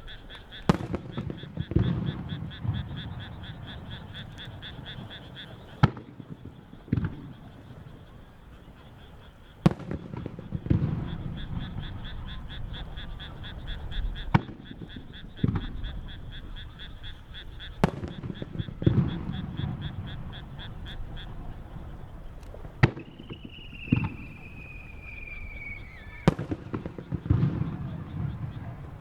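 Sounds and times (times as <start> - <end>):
firework shells bursting: 0.0 - 5.1, 17.8 - 29.0
dull firework boom: 0.7 - 5.1, 14.3 - 16.1, 17.8 - 29.0
fast pulsing chirp: 11.1 - 29.0.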